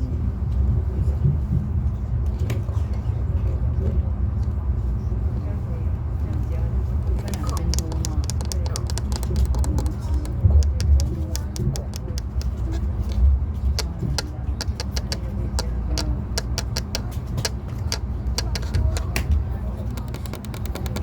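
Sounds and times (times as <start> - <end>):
faint voices: 5.3 - 21.0
sharp clicks and ticks: 7.0 - 21.0.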